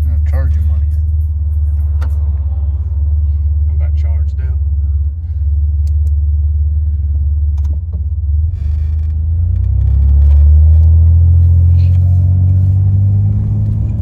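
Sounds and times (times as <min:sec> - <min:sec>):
truck engine and road rumble: 0:00.0 - 0:14.0.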